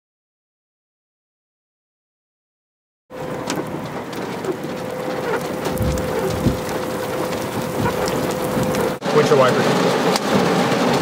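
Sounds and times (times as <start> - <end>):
rain pattering on car roof: 3.1 - 11.0
faint steady hum: 3.2 - 9.0
low rumble: 3.2 - 9.0.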